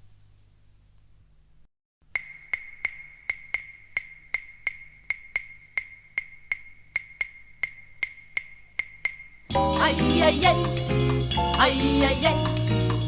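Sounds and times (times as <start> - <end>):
woody percussion knocks: 2.2 - 9.6.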